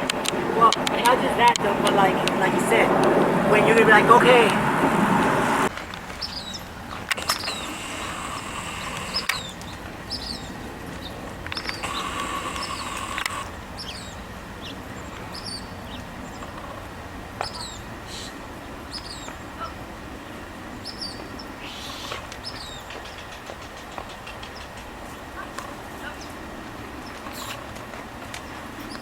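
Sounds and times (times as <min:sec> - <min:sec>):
bird chirping: 0:00.0 - 0:16.8, 0:17.4 - 0:19.8, 0:20.8 - 0:24.9
steady whine: 0:00.0 - 0:21.6.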